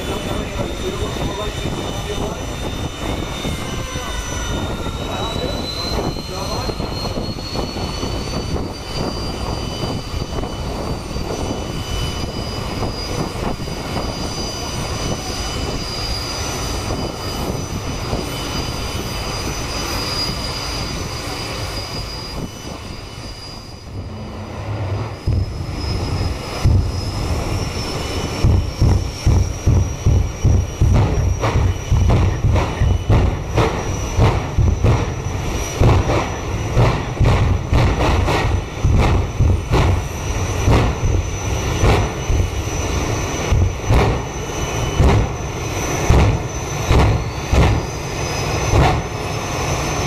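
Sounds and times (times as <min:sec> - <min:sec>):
turbine engine whine and roar: 0:00.0 - 0:50.0
deep pulsing thumps: 0:23.8 - 0:49.4.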